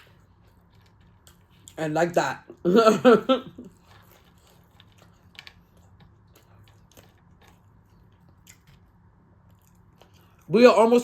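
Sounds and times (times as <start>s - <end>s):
low steady hum: 0.0s - 11.0s
mouth chewing clicks and smacks: 3.7s - 10.5s.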